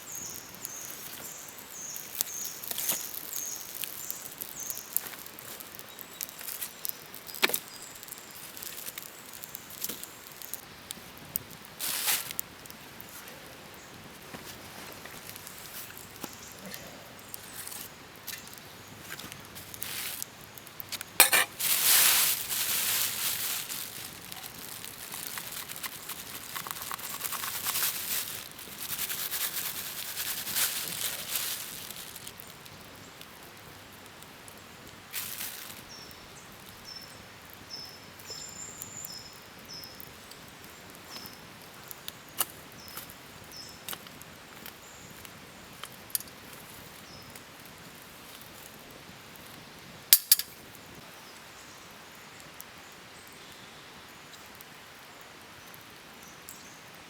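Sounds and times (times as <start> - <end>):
small bird chirping: 0.0 - 10.6, 23.0 - 28.4
rustling handling noise: 11.8 - 12.4, 14.1 - 32.4.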